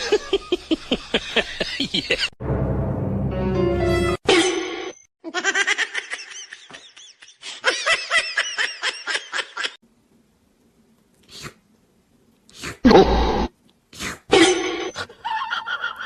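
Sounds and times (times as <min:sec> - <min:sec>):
person laughing breathily: 0:00.0 - 0:02.4, 0:06.7 - 0:08.2.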